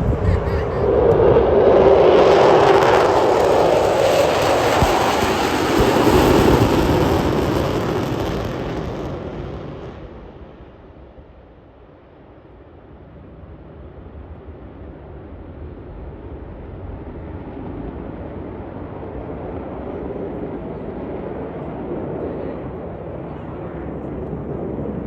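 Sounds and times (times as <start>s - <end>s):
jet engines rushing: 0.0s - 10.7s.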